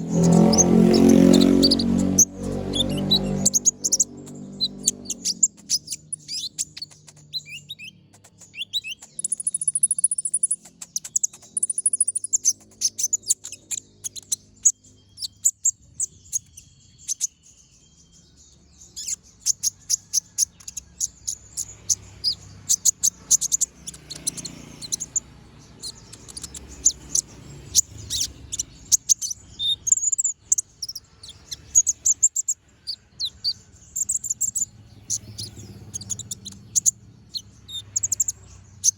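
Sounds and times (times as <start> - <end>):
sunbird singing high chirps: 0.0 - 38.9.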